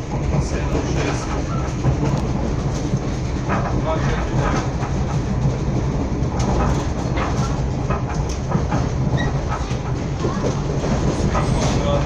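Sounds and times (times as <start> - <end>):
train rumble inside carriage: 0.0 - 12.0
train wheel clicks and rattles: 0.0 - 12.0.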